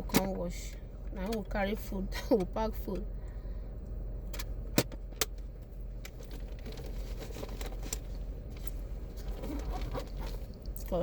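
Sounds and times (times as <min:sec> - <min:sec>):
car engine idling hum: 0:00.0 - 0:11.0.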